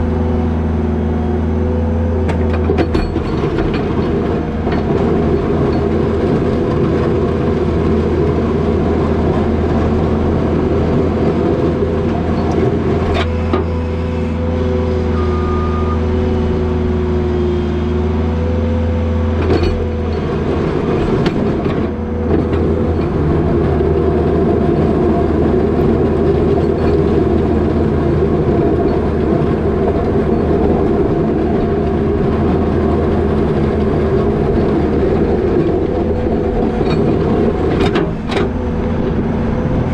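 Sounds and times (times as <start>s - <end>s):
diesel engine running: 0.0s - 39.9s
steady whine: 20.2s - 39.9s.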